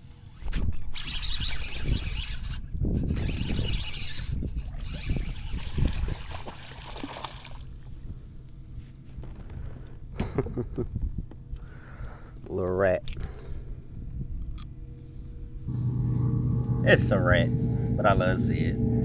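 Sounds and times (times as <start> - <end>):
wind buffeting microphone: 0.4 - 19.0
water splashing around kayak: 4.0 - 8.8.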